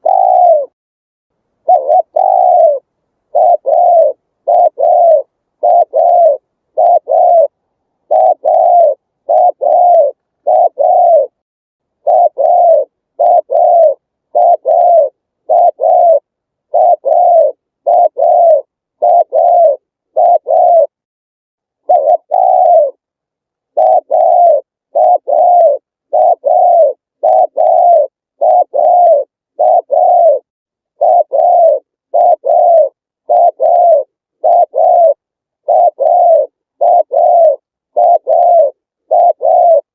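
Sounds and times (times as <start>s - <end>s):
dove cooing: 0.0s - 0.8s, 1.6s - 11.4s, 12.0s - 21.0s, 21.8s - 23.0s, 23.7s - 39.9s.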